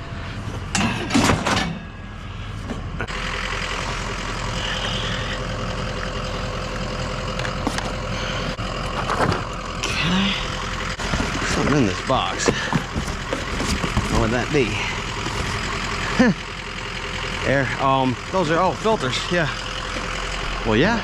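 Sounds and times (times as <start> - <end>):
vehicle engine running: 0.0 - 21.0
metal items clattering: 11.0 - 15.6.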